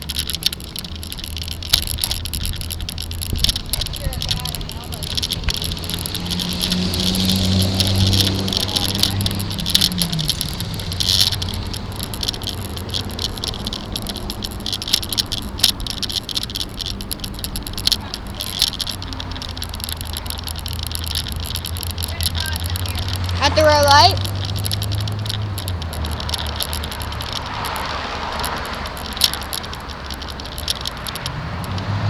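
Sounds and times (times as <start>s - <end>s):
camera rattling from road vibration: 0.0s - 32.0s
vehicle engine hum: 0.0s - 32.0s.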